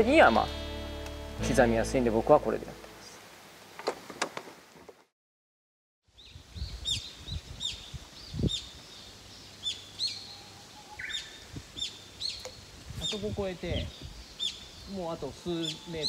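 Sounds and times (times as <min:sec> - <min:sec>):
songbird calling: 0:06.1 - 0:16.0.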